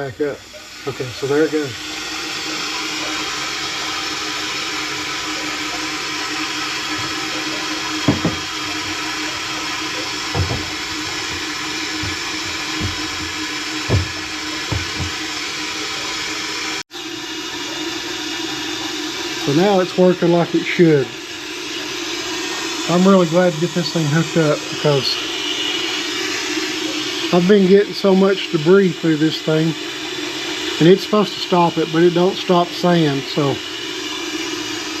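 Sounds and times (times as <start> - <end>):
water rushing through pipes: 0.0 - 35.0
soft low knocks in pipes: 3.0 - 16.2.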